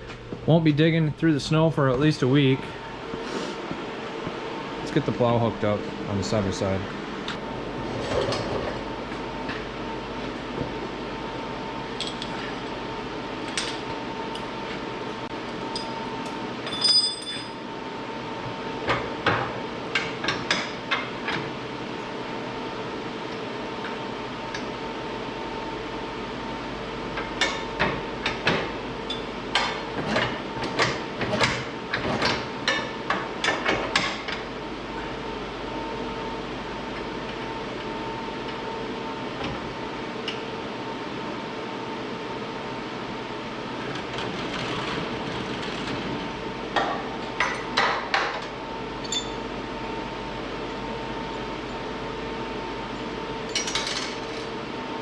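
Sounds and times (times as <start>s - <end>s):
steady hum: 0.0s - 55.0s
ringing metal clink: 16.7s - 17.6s, 49.0s - 49.4s.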